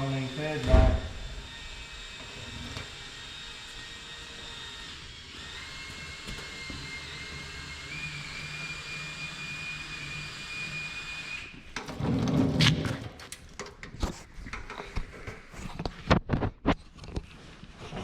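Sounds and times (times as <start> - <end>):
power drill motor whine: 0.0 - 11.8.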